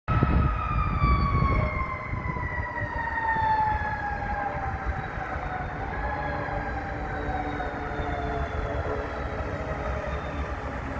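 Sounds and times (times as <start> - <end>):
jet engines high whine: 0.1 - 10.9.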